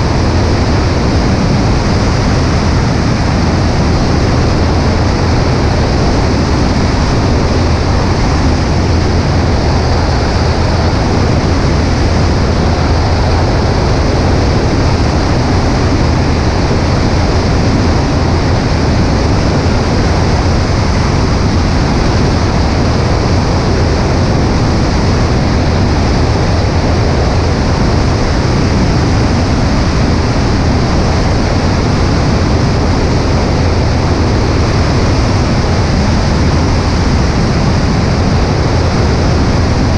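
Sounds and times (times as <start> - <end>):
airplane engine and propeller drone: 0.0 - 39.9
wind rush on microphone: 0.0 - 39.9.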